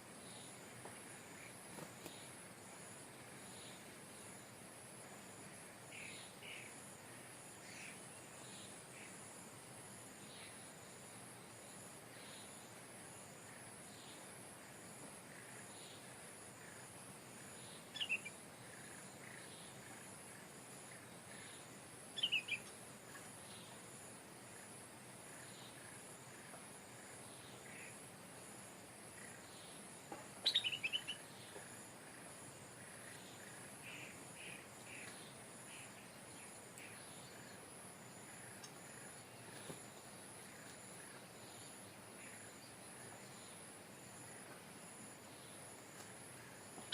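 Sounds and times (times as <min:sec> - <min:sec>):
faint bird chirps: 0:05.8 - 0:09.3, 0:15.2 - 0:23.9, 0:29.1 - 0:46.9.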